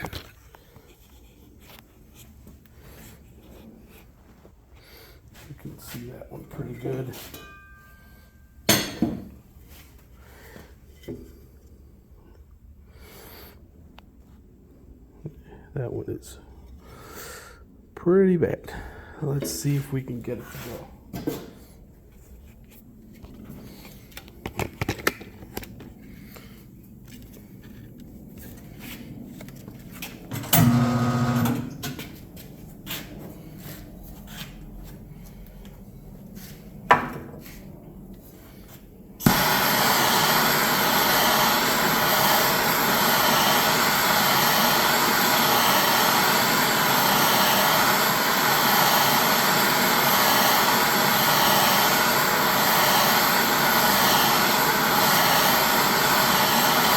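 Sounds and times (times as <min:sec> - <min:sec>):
propane torch rushing: 0:27.7 - 0:32.2, 0:37.4 - 0:56.9.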